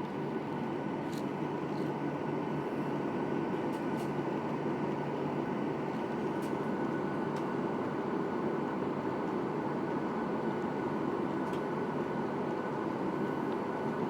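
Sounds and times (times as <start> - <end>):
jet engine cabin hum: 6.0 - 14.0.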